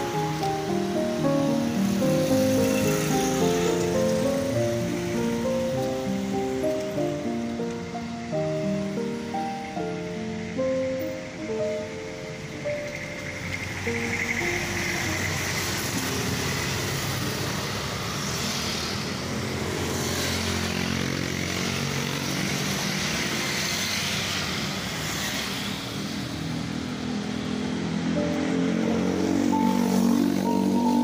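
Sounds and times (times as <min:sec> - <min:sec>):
background music: 0:00.0 - 0:17.8, 0:27.4 - 0:31.0
cars passing: 0:00.0 - 0:31.0
motorcycles passing: 0:00.0 - 0:31.0.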